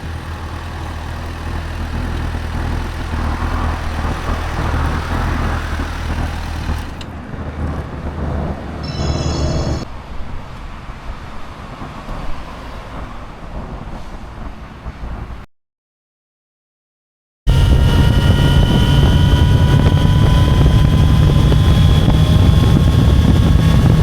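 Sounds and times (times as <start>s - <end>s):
car engine idling: 0.0s - 7.2s
traffic noise: 0.0s - 15.5s
high-pitched squeal: 8.8s - 9.9s, 17.5s - 24.0s.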